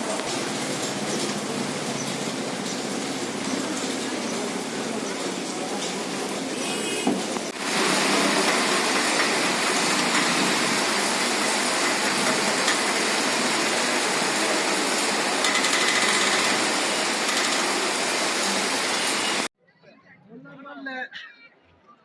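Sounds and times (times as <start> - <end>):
steady rainfall: 0.0 - 19.5.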